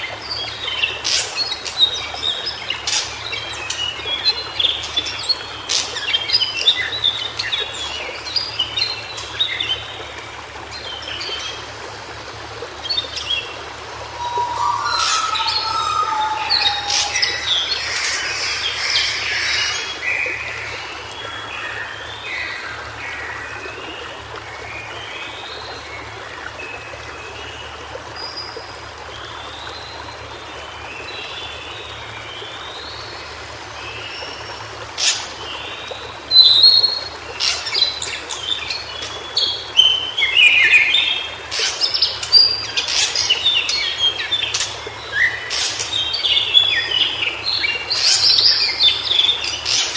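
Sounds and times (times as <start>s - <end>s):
bird singing high notes: 13.9s - 20.6s.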